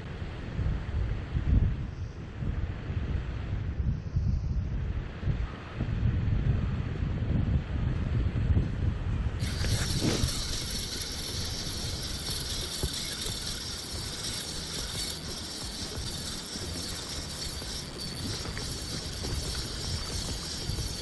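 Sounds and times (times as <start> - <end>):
wind buffeting microphone: 0.2 - 21.0
constant high hiss: 9.4 - 21.0.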